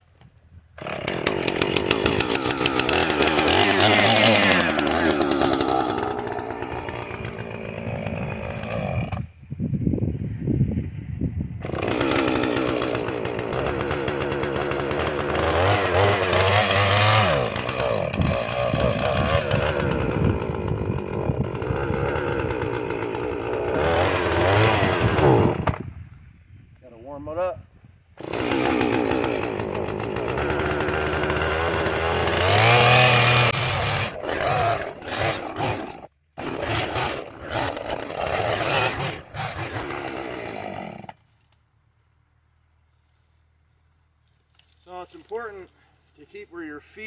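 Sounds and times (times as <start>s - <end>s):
chainsaw revving: 0.8s - 9.4s, 11.6s - 25.8s, 28.2s - 41.2s.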